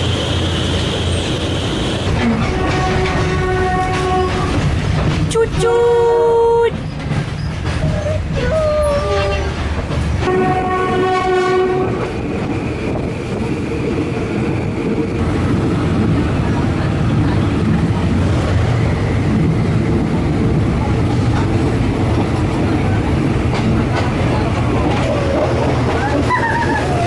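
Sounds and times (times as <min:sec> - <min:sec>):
train rumbling on rails: 0:00.0 - 0:27.0
train horn blast: 0:02.2 - 0:04.6, 0:10.2 - 0:12.0.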